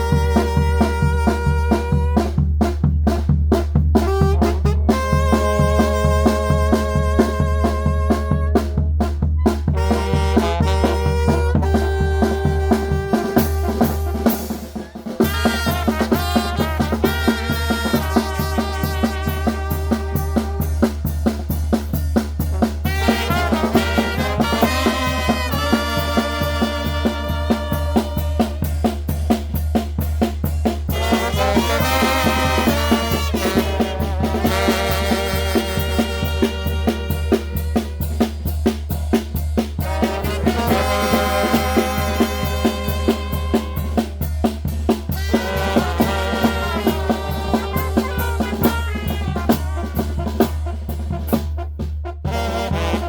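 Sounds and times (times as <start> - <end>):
bass drum and snare beat: 0.0 - 53.0
brass band playing: 0.0 - 53.0.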